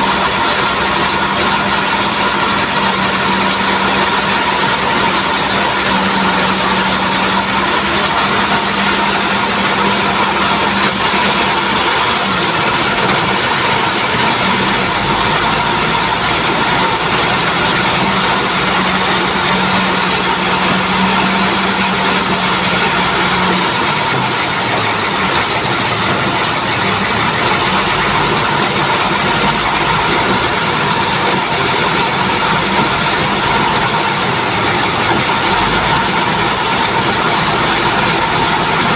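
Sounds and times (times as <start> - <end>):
truck engine idling: 0.0 - 38.9.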